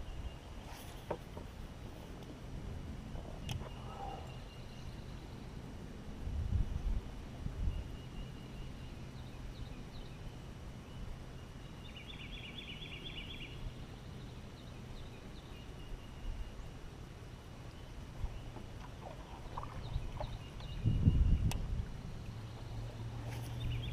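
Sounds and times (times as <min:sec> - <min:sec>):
steady low rumble: 0:01.5 - 0:23.9
faint bird chirps: 0:03.2 - 0:05.6, 0:07.6 - 0:16.8.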